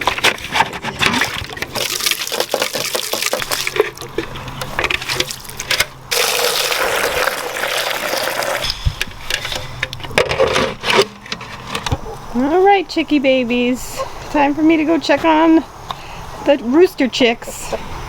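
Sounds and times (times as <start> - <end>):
water from hose running: 1.1 - 8.7.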